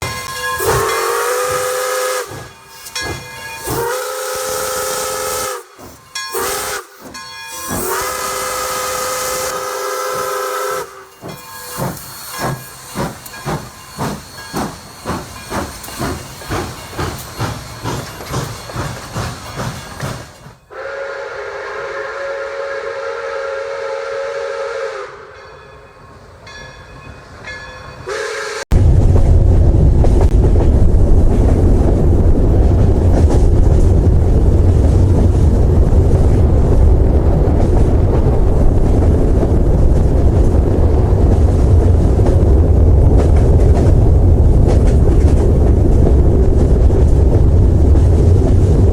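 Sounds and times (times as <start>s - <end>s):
steam whistle blasts: 0.0s - 2.9s, 3.6s - 11.8s, 20.7s - 25.4s, 28.0s - 28.7s
steam locomotive chuffing: 0.0s - 25.9s.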